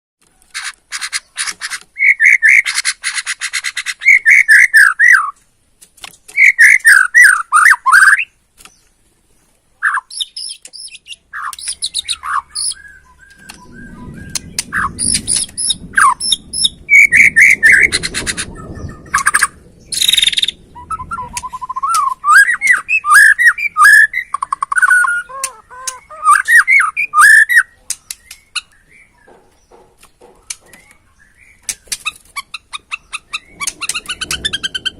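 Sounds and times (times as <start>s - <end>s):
fast dry rattling bird calls: 0.3s - 34.9s
bird singing whistled phrases: 4.0s - 5.4s, 6.3s - 8.3s, 9.9s - 29.3s
low rumbling noise: 11.8s - 27.2s, 33.0s - 34.9s.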